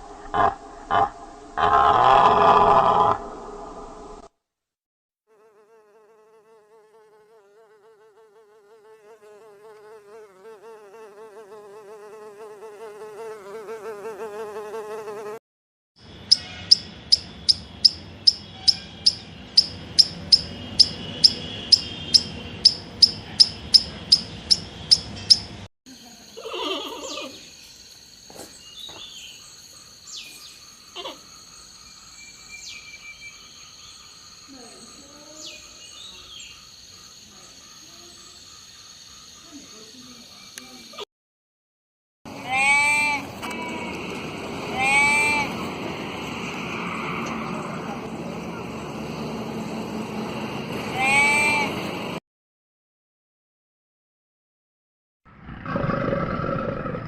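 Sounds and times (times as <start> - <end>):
flying insect buzzing: 5.3 - 15.4
sharp high chirps: 16.1 - 25.6.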